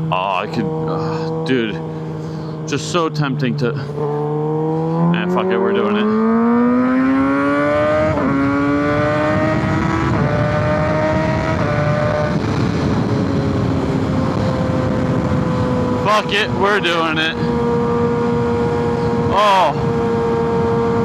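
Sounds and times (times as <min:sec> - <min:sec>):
motorcycle engine accelerating: 0:00.0 - 0:21.0
wind over microphone: 0:07.6 - 0:21.0.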